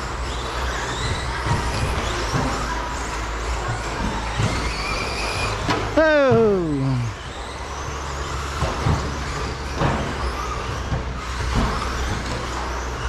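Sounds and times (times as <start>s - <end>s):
rc truck motors whining: 0.0s - 13.0s
steady low hum: 5.3s - 8.5s.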